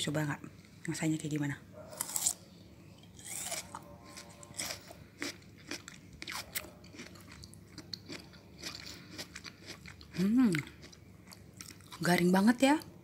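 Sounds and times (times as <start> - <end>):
melon crunching being chewed: 1.9 - 12.3.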